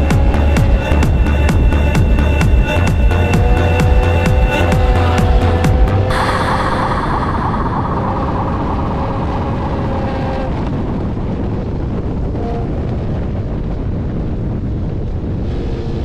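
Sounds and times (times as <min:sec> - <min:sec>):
motorcycle engine running: 0:00.0 - 0:06.2
wind rumble on microphone: 0:00.0 - 0:16.0.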